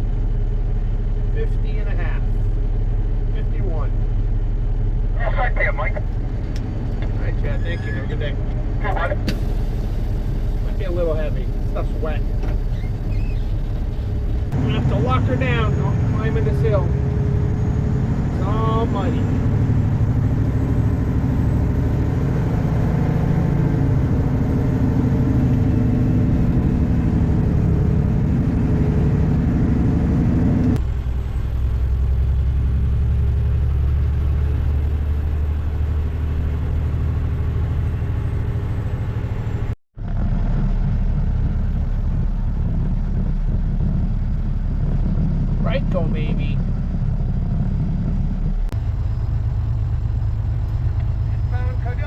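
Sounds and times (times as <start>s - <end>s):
dump truck engine pulling under load: 6.2s - 45.6s.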